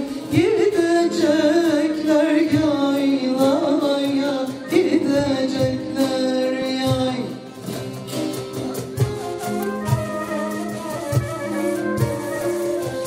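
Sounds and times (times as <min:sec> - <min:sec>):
folk song singing: 0:00.0 - 0:09.4
instrumental accompaniment with beat: 0:00.0 - 0:13.0.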